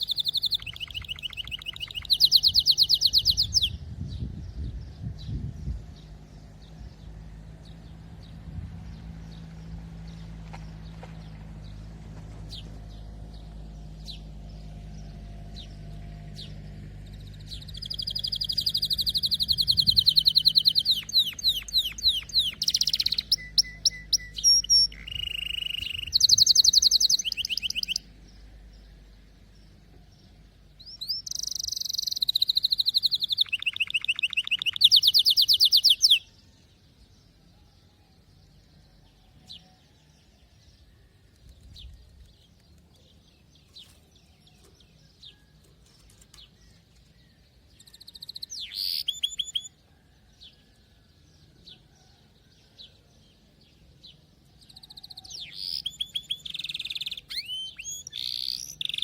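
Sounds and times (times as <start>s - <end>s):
single bird chirps: 0.0s - 3.8s, 17.5s - 28.1s, 30.8s - 36.4s, 41.4s - 49.8s, 54.6s - 59.0s
canary singing trills: 0.0s - 10.8s, 11.6s - 49.9s, 51.4s - 59.0s.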